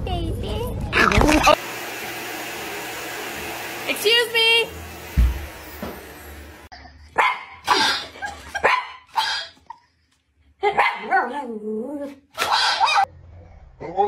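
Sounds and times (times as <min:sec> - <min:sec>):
dog barking: 0:07.2 - 0:09.6, 0:10.6 - 0:11.4, 0:12.4 - 0:13.1.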